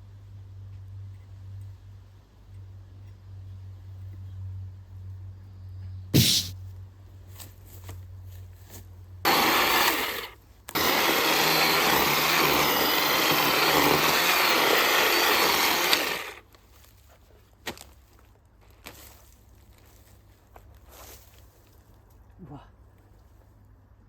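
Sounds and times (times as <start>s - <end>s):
sharp knock: 6.2s - 6.6s
power saw cutting wood: 9.3s - 16.4s.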